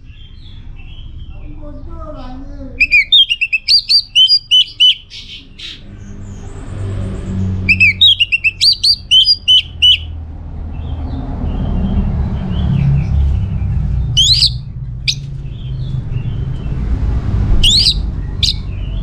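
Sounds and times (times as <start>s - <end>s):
thrush singing: 2.8s - 5.8s, 7.7s - 10.1s, 14.2s - 15.2s.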